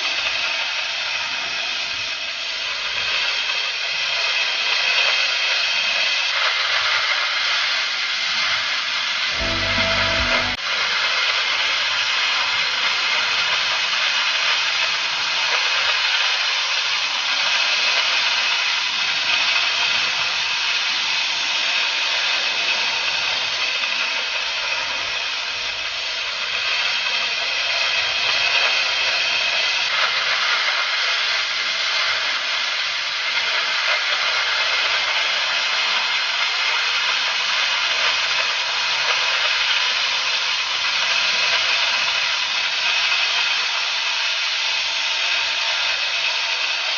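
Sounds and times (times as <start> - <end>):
cutting torch hissing: 13.4 - 46.9.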